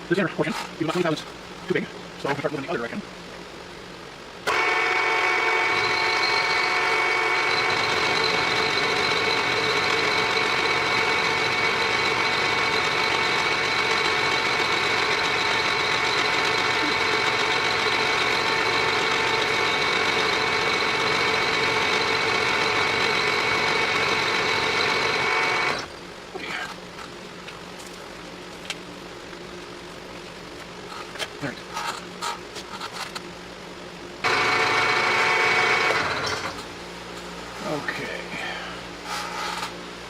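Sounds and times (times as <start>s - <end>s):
lathe-mill motor and gear whine: 0.0s - 40.0s.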